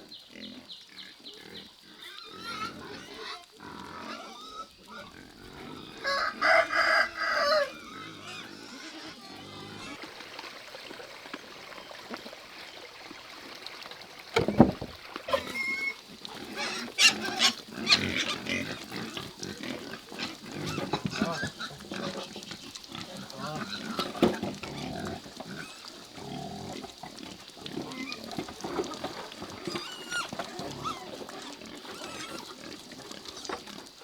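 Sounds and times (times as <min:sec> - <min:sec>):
pigs squealing and grunting: 0:00.3 - 0:10.2, 0:14.4 - 0:34.0
sharp knocks: 0:14.4 - 0:15.0.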